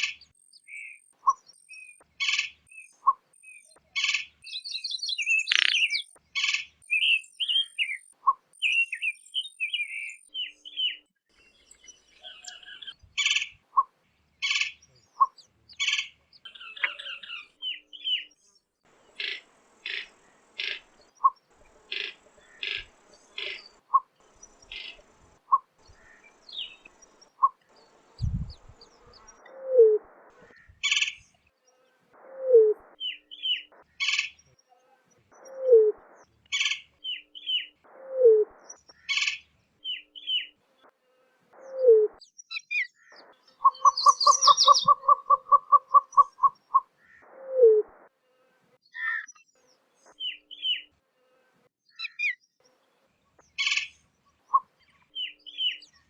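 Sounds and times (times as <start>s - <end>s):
birds chirping: 0.0s - 47.8s, 48.4s - 56.0s
bird cooing: 43.6s - 46.5s, 47.4s - 47.9s.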